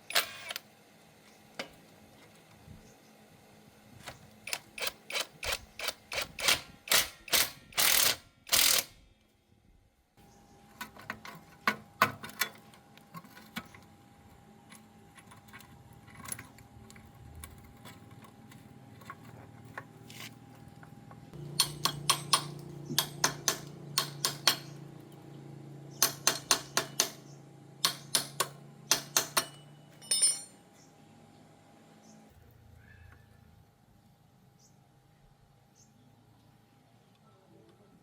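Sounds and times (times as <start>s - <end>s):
metal tools clinking: 29.4s - 30.6s.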